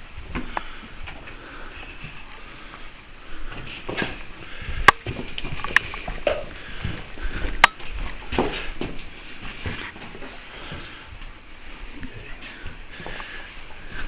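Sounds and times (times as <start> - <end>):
footsteps crunching over debris: 0.1 - 14.0
sharp cracks or snaps: 7.5 - 7.9.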